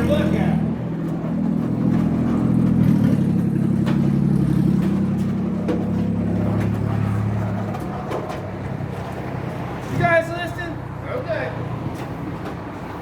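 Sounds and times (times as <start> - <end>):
car engine running: 0.0 - 9.3.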